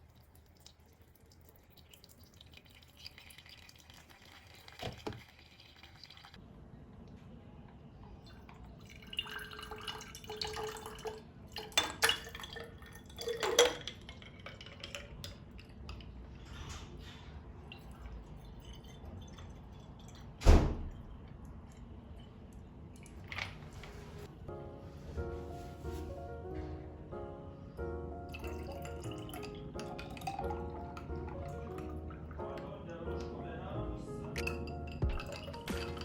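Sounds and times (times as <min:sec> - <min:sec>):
dishes and glassware clinking: 0:34.3 - 0:36.0.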